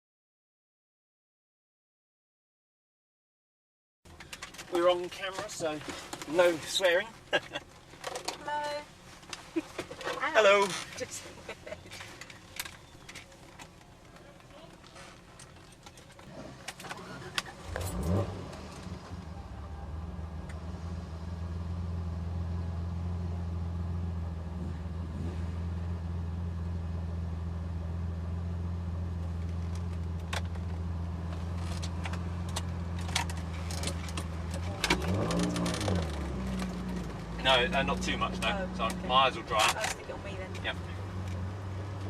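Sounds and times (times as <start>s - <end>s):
clicks and rattles in car: 4.1s - 18.9s, 29.2s - 37.4s, 38.4s - 41.4s
car engine starting and idling: 4.1s - 42.0s.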